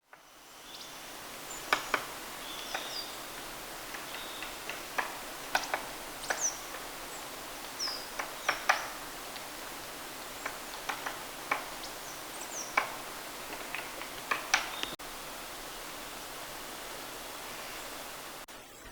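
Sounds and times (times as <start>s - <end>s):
woodpecker tapping on wood: 1.5s - 15.0s.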